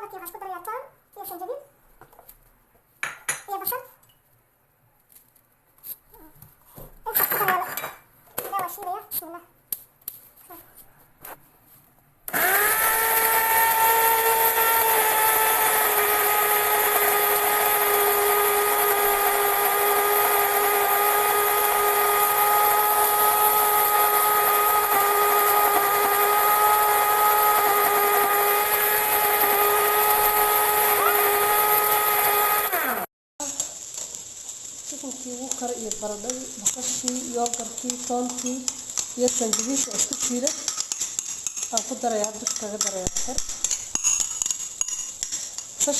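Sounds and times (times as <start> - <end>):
electric blender running: 12.3 - 33.1.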